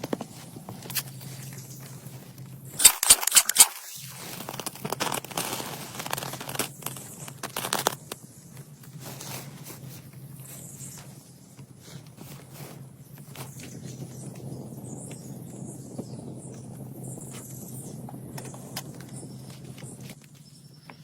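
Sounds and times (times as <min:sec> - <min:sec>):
dry plants rustling and tearing: 0:00.0 - 0:10.6
sharp snaps: 0:02.8 - 0:03.8.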